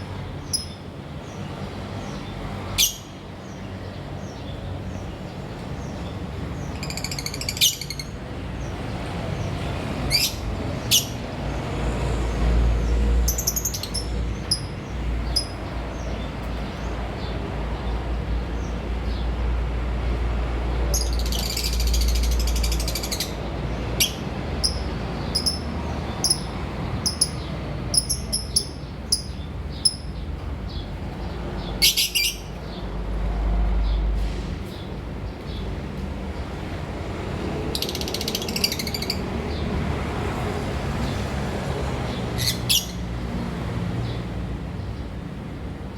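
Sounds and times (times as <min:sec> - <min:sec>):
lovebirds chirping: 0:21.0 - 0:30.9.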